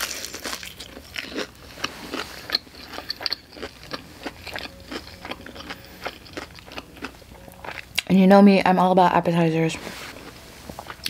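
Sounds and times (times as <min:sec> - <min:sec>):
crisp crunches of chewing fried chicken: 0:00.0 - 0:08.0.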